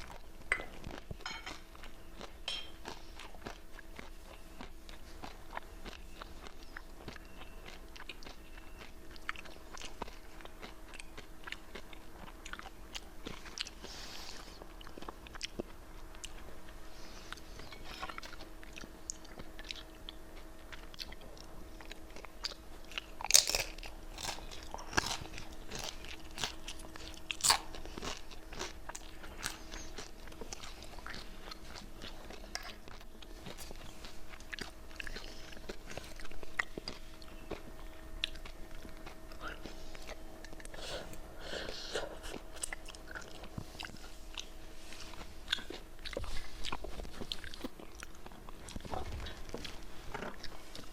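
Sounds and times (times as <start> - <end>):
crunching and chewing crisp chips: 0.0 - 50.9
faint steady hum: 0.0 - 50.9.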